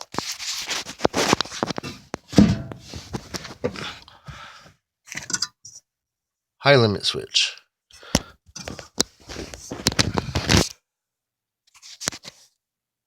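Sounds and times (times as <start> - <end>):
rustling and scraping: 0.0 - 4.0, 8.6 - 10.7.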